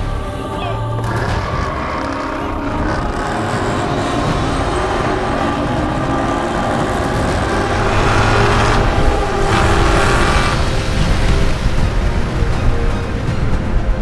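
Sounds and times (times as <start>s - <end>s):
cars accelerating hard: 1.0s - 12.6s.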